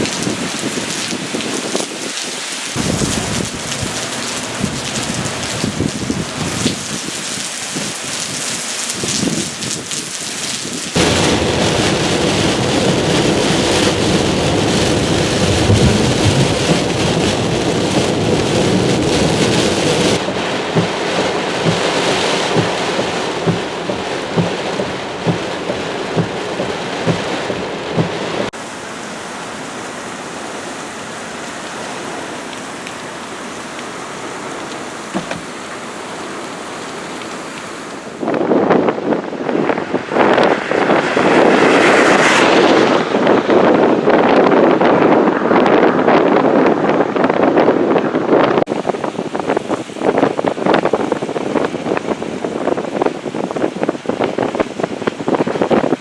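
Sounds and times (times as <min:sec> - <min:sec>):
heavy rain and wind rushing: 0:00.0 - 0:56.0
short low thumps: 0:20.2 - 0:28.5, 0:35.1 - 0:35.6.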